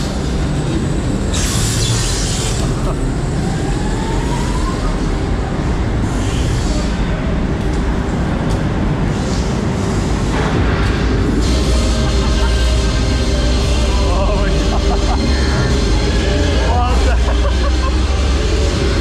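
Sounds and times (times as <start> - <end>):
coaster train rumble: 0.0 - 19.0.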